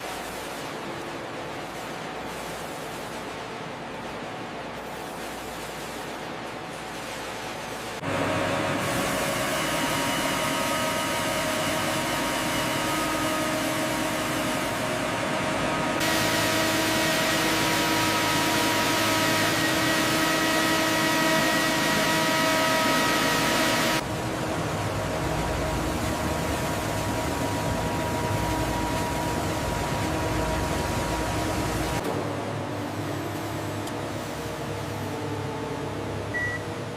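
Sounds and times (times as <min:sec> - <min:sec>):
industrial machinery humming: 0:00.0 - 0:36.9
steady tones over drone: 0:08.0 - 0:36.9.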